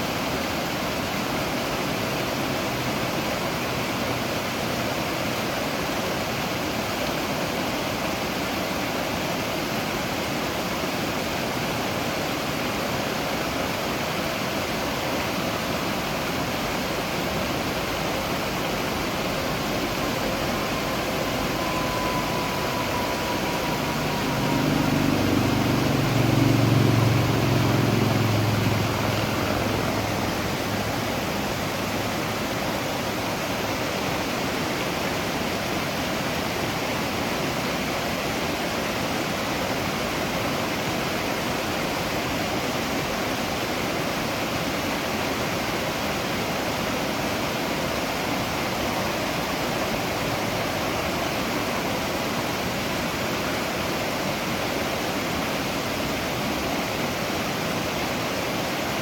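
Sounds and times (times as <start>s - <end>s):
waterfall rushing: 0.0s - 59.0s
low rumble: 17.6s - 32.9s.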